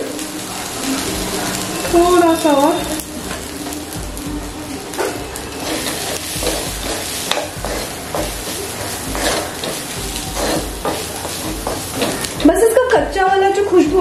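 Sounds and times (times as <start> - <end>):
food sizzling in a pan: 0.0 - 14.0
spoon scraping a pan: 5.0 - 12.4.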